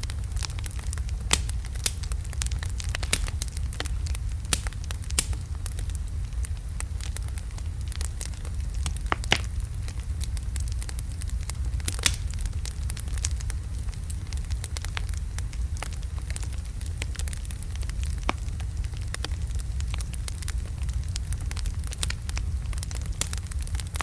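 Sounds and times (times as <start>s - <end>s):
fire rumbling: 0.0s - 24.0s
wood crackling and popping: 0.0s - 24.0s.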